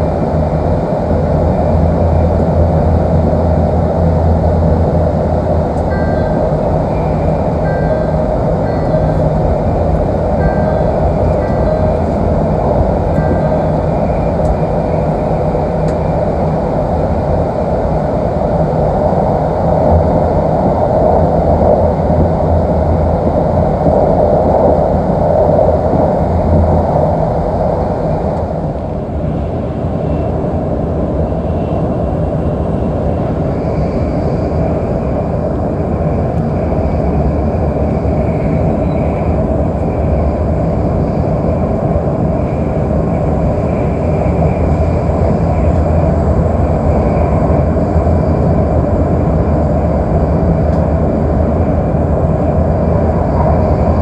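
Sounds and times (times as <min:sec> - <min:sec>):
faint high whine: 0:00.0 - 0:54.0
train rumble and air rush: 0:00.0 - 0:54.0.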